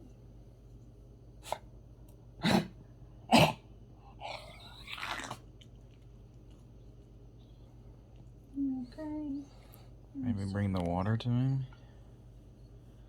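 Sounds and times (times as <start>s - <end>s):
dog coughing: 2.4s - 4.5s.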